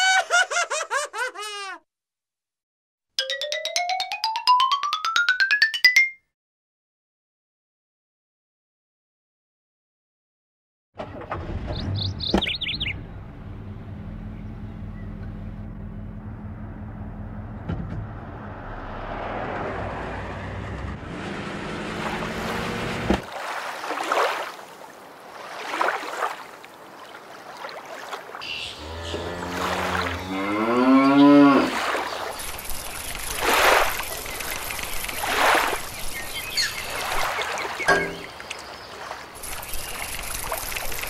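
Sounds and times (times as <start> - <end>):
car engine running: 11.4 - 18.6
bird chirp: 11.7 - 13.1, 28.4 - 29.4, 35.8 - 40.4.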